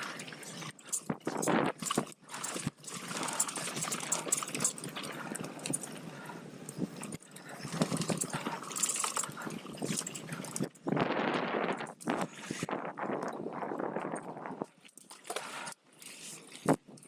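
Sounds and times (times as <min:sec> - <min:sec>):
bike knocking and rattling: 0:00.8 - 0:14.4.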